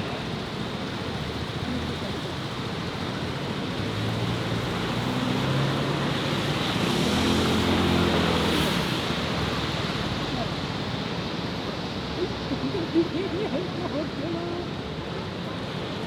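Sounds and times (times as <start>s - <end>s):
city street traffic: 0.0s - 16.0s
vehicle engine approaching: 3.6s - 11.0s.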